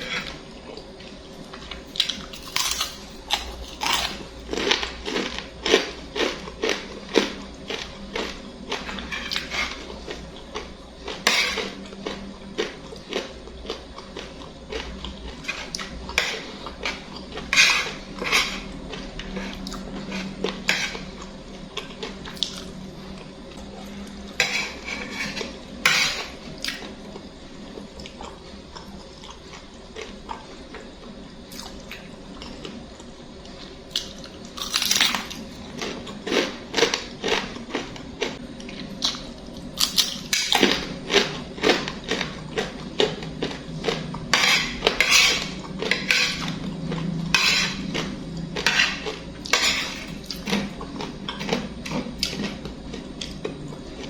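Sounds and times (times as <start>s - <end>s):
cutlery clinking and scraping on dish: 8.8s - 9.9s, 11.3s - 11.8s, 15.4s - 21.1s, 24.4s - 26.8s, 44.3s - 46.6s, 47.3s - 51.6s.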